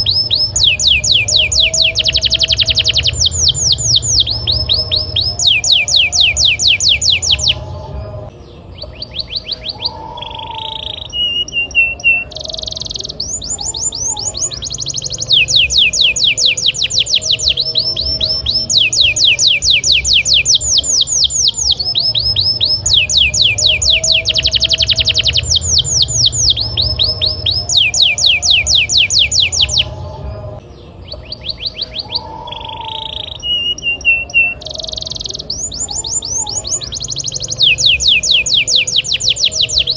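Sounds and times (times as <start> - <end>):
low hum: 0.0 - 10.2, 13.0 - 31.2
canary singing trills: 0.0 - 39.9.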